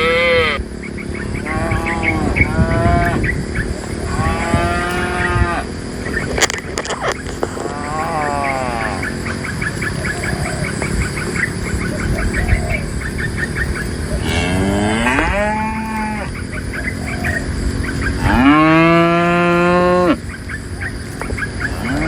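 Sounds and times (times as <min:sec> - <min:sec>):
cattle mooing: 0:00.0 - 0:00.6, 0:01.3 - 0:03.2, 0:03.8 - 0:05.8, 0:06.8 - 0:10.6, 0:13.6 - 0:16.4, 0:18.0 - 0:20.2, 0:21.7 - 0:22.0.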